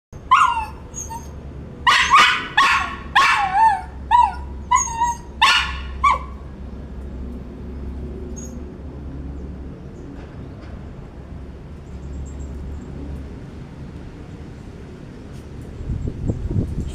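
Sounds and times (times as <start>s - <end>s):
small dog barking and yipping: 0.2s - 6.4s.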